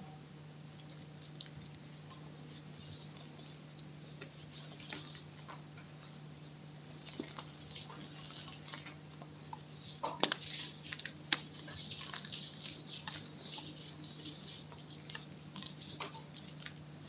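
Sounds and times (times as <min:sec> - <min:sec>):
faint steady hum: 0:00.0 - 0:17.0
chalk crunching and crumbling: 0:06.9 - 0:16.8
chalk snapping: 0:07.1 - 0:16.8.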